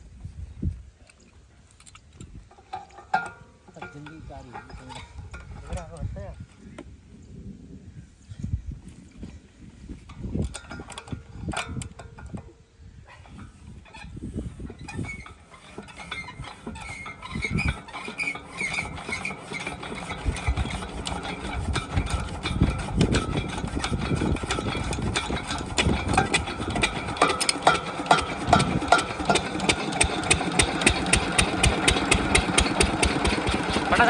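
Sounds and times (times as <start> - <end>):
diesel pump engine running: 14.2 - 34.0.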